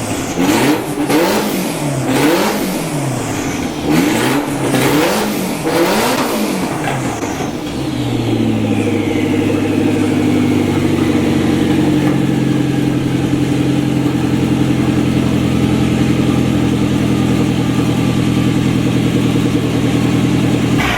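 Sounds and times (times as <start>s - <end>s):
car exhaust revving and idling: 0.0s - 20.9s
turbo whistle: 7.8s - 13.2s.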